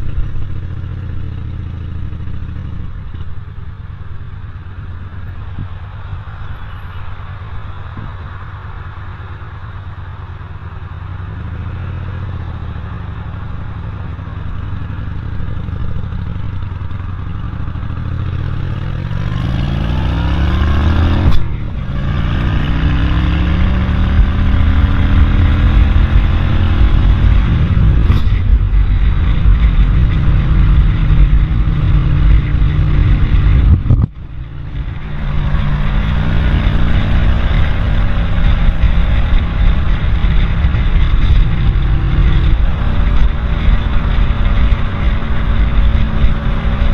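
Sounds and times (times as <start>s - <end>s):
vehicle engine accelerating: 0.0s - 46.9s.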